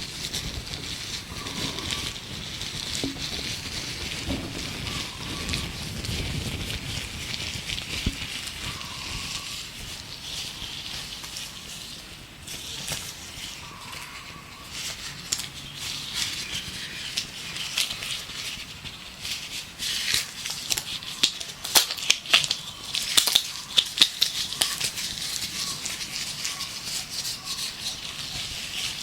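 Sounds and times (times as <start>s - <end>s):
gloves crinkling and rustling: 0.0s - 29.0s
faint birdsong: 1.3s - 2.2s, 4.3s - 5.9s, 8.5s - 19.0s, 22.2s - 29.0s.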